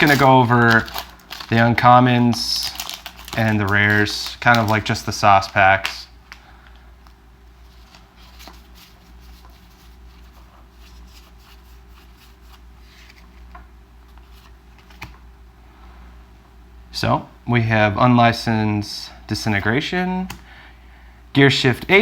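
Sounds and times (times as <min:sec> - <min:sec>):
cards rustling and clicking: 0:00.0 - 0:15.2.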